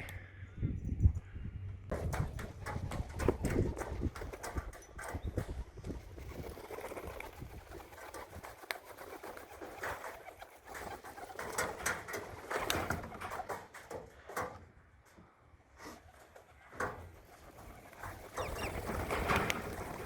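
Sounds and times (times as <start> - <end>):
pigeon wing flaps: 1.9 - 14.6, 15.9 - 20.0
birds landing on board: 6.2 - 14.7, 16.0 - 20.0.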